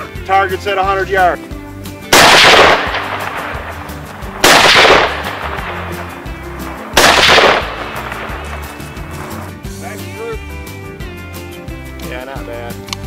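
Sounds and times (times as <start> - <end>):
rifle shots: 2.1 - 9.2.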